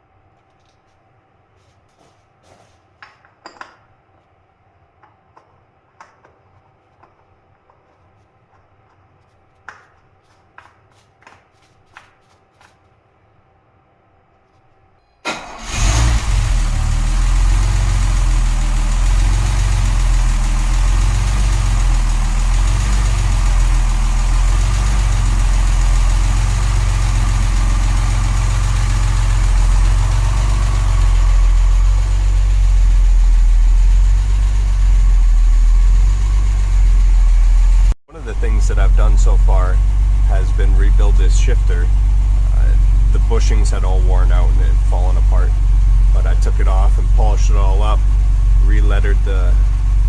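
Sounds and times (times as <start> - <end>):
car engine starting and idling: 15.2 - 50.0.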